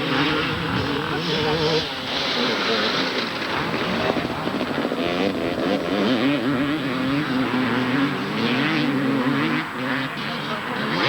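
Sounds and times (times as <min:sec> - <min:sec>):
motocross bike engines racing: 0:00.0 - 0:11.0.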